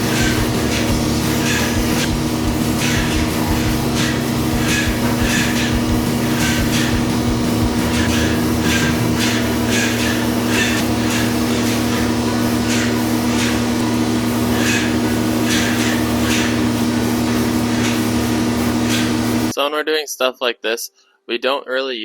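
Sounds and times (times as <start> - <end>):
hissing spray bursts: 0.0 - 19.5
paint sprayer machine hum: 0.0 - 19.5.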